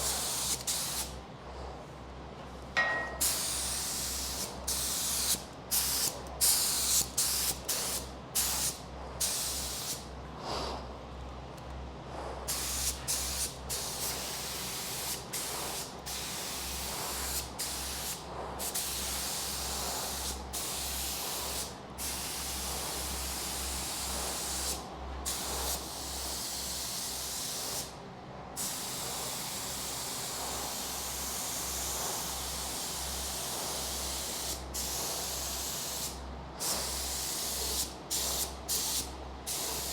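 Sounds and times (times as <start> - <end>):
spray gun hissing: 0.0 - 1.1, 3.2 - 10.0, 12.5 - 27.9, 28.6 - 39.9
steady low hum: 0.0 - 26.1.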